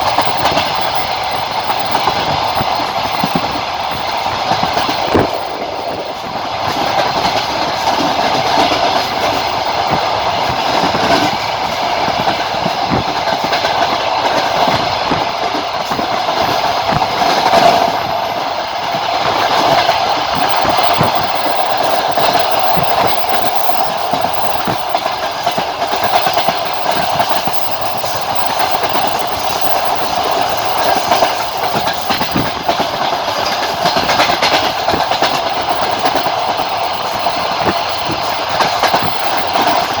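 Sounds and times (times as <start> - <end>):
train running noise: 0.0 - 40.0
wheels knocking over rail joints: 0.0 - 40.0.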